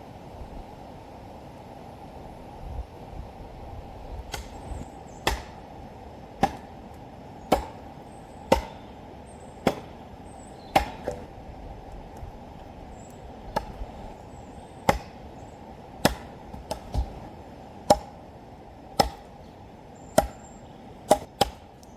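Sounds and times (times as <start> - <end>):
sharp chopping strikes: 4.3 - 5.6, 6.4 - 6.8, 7.5 - 7.9, 8.5 - 8.9, 9.6 - 10.0, 10.7 - 11.3, 13.5 - 13.8, 14.8 - 15.2, 16.0 - 17.2, 17.9 - 18.2, 19.0 - 19.3, 20.2 - 20.5, 21.1 - 21.7.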